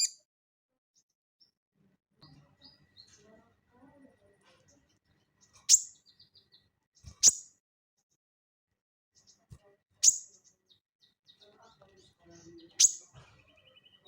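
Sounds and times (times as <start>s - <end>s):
bird giving sharp calls: 12.8s - 13.0s.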